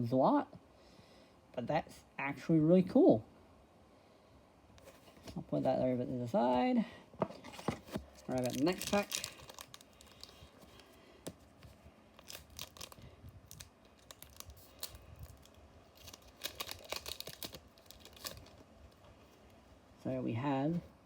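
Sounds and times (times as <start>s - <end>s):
foil wrapper tearing and crinkling: 8.2s - 10.9s, 12.2s - 18.6s.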